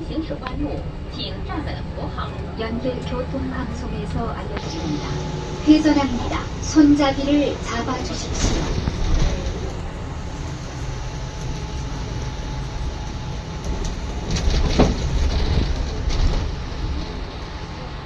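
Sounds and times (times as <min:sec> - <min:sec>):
bus engine and road rumble: 0:00.0 - 0:18.0
bus body knocks and rattles: 0:04.2 - 0:10.0, 0:10.7 - 0:17.9.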